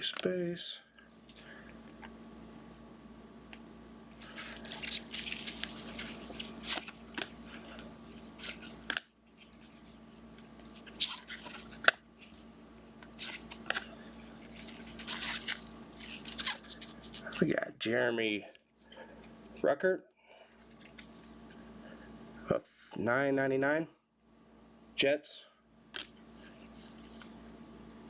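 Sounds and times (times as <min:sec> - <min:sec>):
low steady hum: 0:00.0 - 0:28.0
cards rustling: 0:04.1 - 0:17.5, 0:20.5 - 0:21.6, 0:26.0 - 0:28.0.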